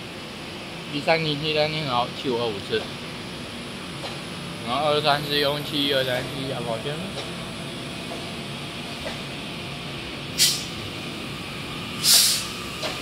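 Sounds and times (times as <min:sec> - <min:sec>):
train running noise: 0:01.8 - 0:13.0
short sharp air hisses: 0:10.4 - 0:10.8, 0:12.0 - 0:12.6.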